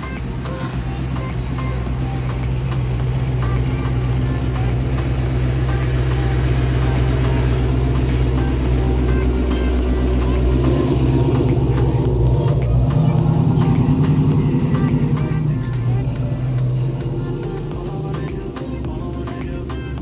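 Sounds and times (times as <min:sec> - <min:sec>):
car engine at low speed: 0:00.0 - 0:20.0.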